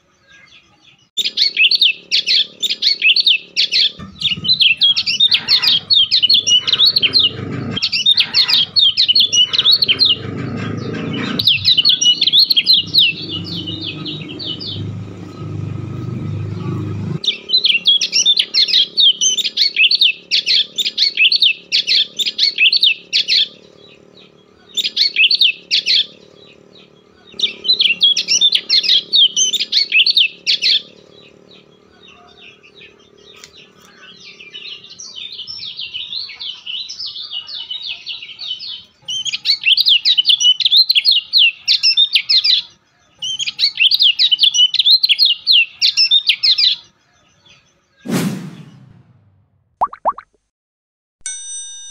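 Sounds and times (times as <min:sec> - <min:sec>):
bird chirping: 0:00.0 - 0:49.1
low rumbling noise: 0:03.4 - 0:18.0, 0:48.1 - 0:49.6.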